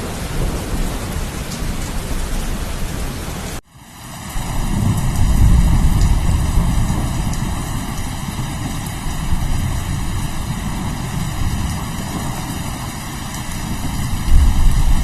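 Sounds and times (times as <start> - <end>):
rain hissing: 0.0 - 15.0
rolling thunder rumble: 4.4 - 15.0.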